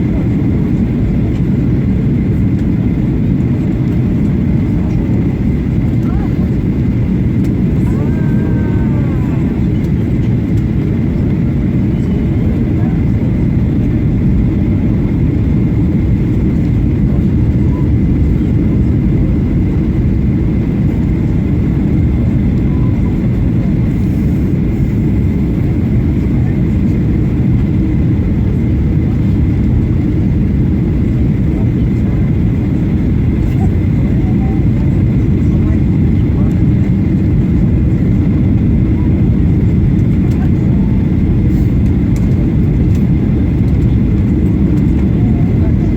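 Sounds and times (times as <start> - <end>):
aircraft cabin engine rumble: 0.0 - 45.9.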